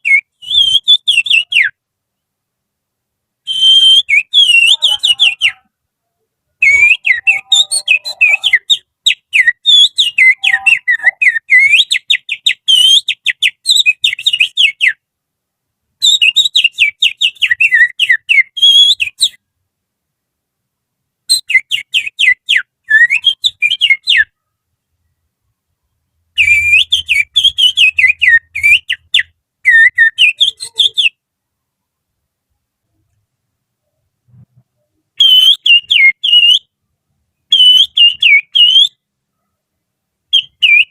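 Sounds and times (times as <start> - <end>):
finger whistle imitating birdsong: 0.0 - 1.8, 3.5 - 5.7, 6.6 - 15.0, 16.0 - 19.4, 21.3 - 24.4, 26.4 - 31.2, 35.2 - 36.7, 37.5 - 39.0, 40.4 - 40.9.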